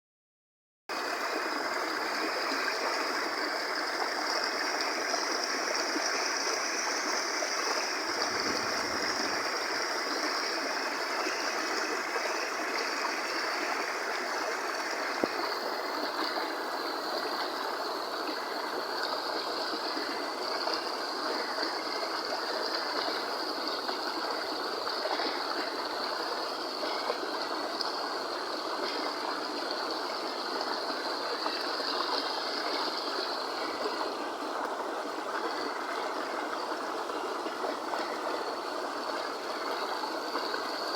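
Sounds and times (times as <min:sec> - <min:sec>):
stream flowing: 0:00.9 - 0:40.9.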